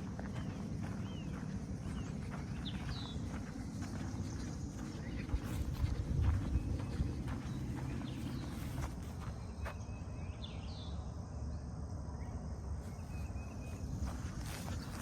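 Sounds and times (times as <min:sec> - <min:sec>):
soft footsteps: 0:00.0 - 0:09.8, 0:12.8 - 0:15.0
bird chirping: 0:00.0 - 0:11.1, 0:12.1 - 0:15.0.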